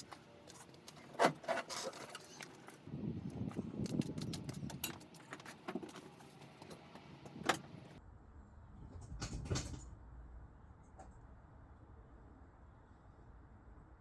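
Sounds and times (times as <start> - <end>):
objects being handled: 0.0 - 8.0.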